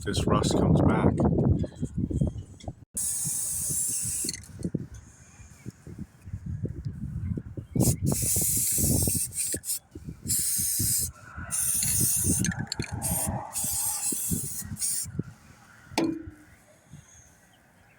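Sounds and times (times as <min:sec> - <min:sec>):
spray can hissing: 0:03.0 - 0:04.4, 0:07.8 - 0:15.1.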